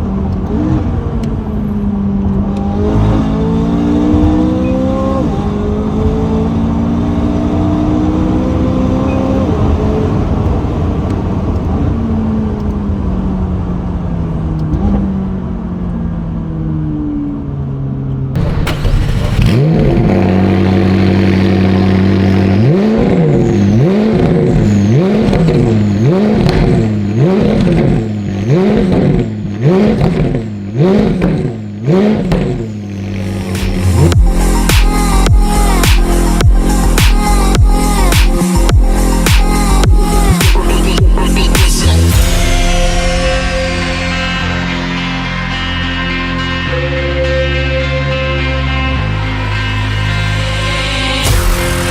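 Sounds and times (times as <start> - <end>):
car engine revving: 0.0 - 16.4, 18.4 - 51.9
car engine slowing down: 0.0 - 46.6
car engine idling: 18.4 - 46.0.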